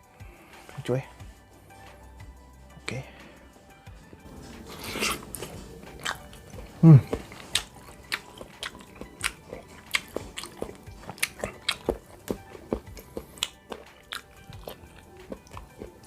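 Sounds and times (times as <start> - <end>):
wet chewing mouth clicks and smacks: 4.8 - 16.0.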